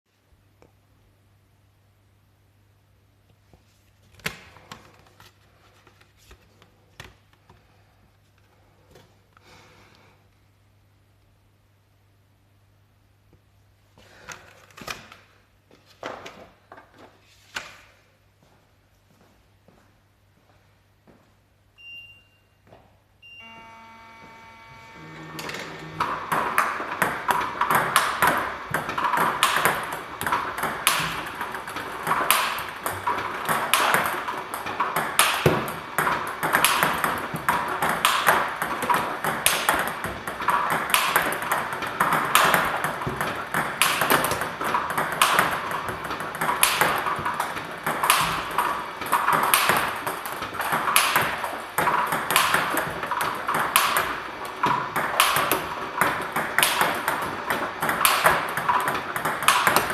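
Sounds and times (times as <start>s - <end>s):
table tennis racket hits: 24.3s - 59.9s
ball bouncing on table: 25.0s - 59.9s.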